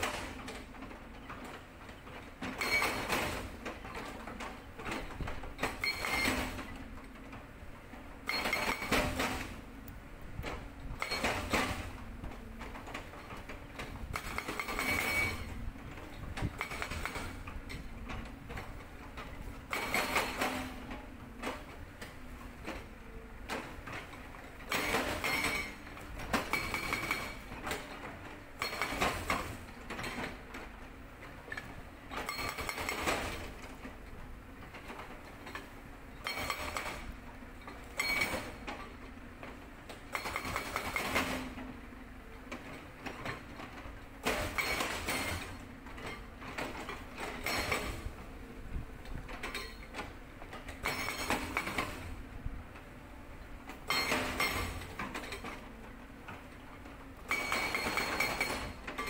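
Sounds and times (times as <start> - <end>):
hydraulic breaker hammering rock: 0.0 - 0.7, 2.5 - 6.8, 8.2 - 9.6, 10.4 - 22.9, 23.5 - 28.0, 28.6 - 30.4, 31.5 - 33.9, 35.5 - 39.0, 39.9 - 41.7, 42.6 - 48.2, 49.2 - 52.2, 53.7 - 55.6, 57.2 - 59.0
excavator diesel engine running: 0.0 - 59.0.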